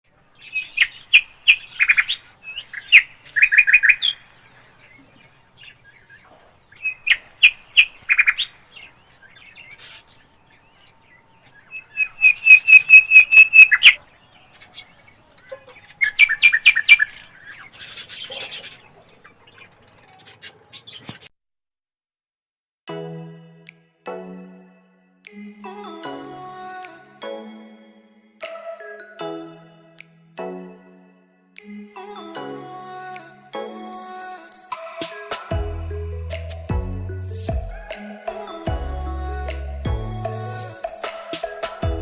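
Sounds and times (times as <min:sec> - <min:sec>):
parakeets chirping: 0:00.3 - 0:21.3.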